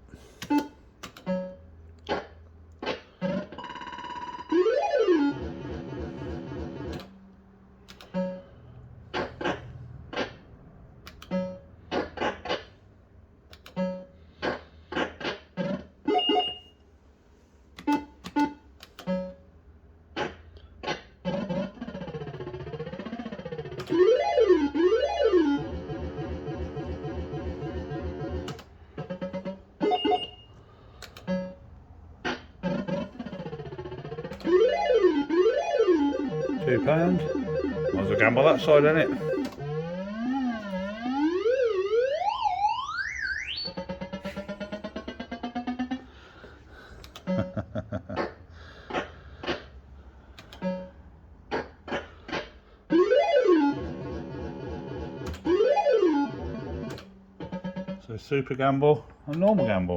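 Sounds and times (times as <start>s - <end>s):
fruit machine bleeps: 16.2s - 16.8s, 29.9s - 30.6s
synthesized warbling tune: 32.6s - 42.1s.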